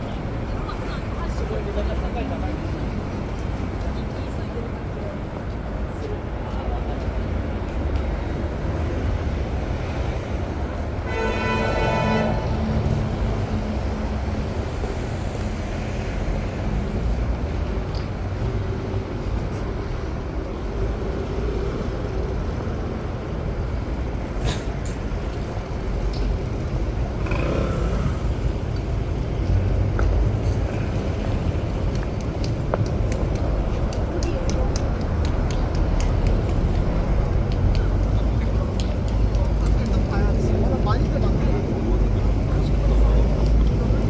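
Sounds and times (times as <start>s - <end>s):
traffic rumble: 0.0s - 44.0s.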